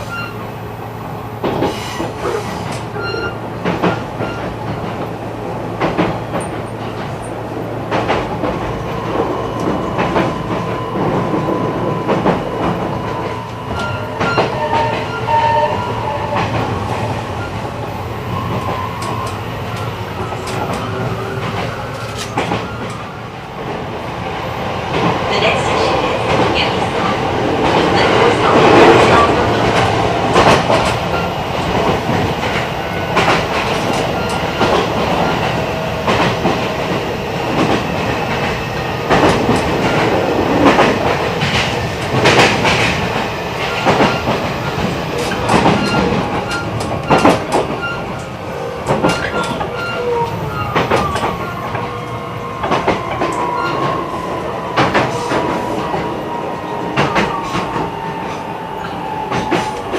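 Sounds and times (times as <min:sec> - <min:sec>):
train rolling noise: 0:00.0 - 0:59.9
wheels clacking over rail joints: 0:27.6 - 0:54.0.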